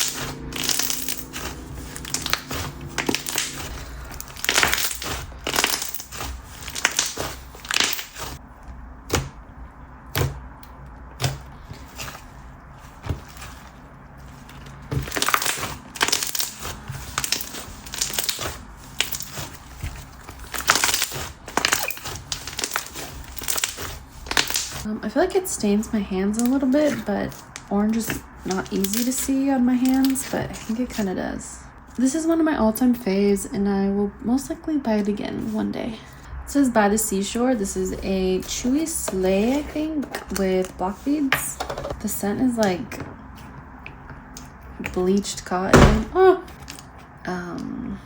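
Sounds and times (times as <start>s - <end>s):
slime crackling and popping: 0.0s - 8.4s, 14.4s - 24.9s, 26.4s - 31.0s.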